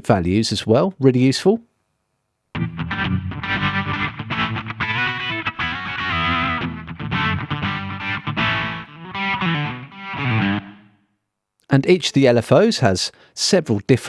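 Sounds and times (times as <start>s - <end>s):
electric guitar with modulation effects: 2.6s - 11.1s.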